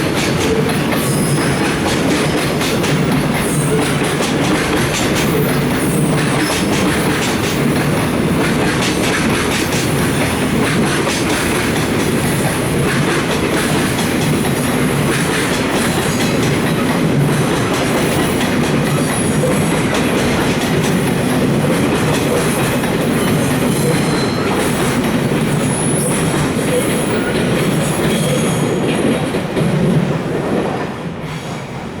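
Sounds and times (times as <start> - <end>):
train wheels clattering over rail joints: 0.0 - 30.2
high wheel squeals: 23.1 - 24.8.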